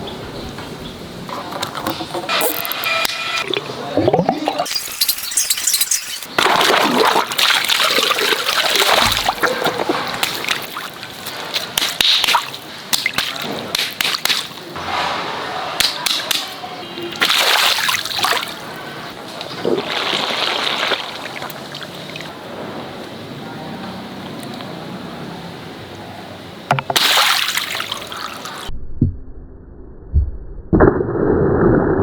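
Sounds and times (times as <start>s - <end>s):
water splashing and sloshing: 3.4s - 22.4s, 26.7s - 28.7s.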